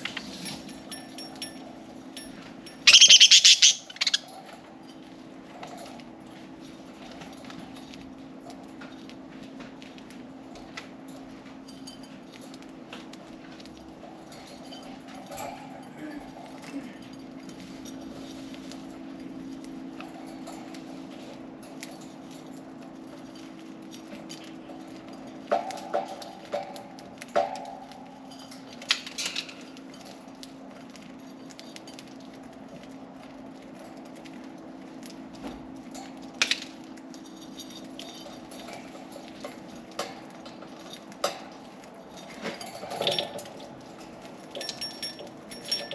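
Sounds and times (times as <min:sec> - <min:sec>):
birds pecking seeds: 0:00.0 - 0:45.9
steady low hum: 0:00.0 - 0:45.9
soft bird chirps: 0:02.9 - 0:04.3.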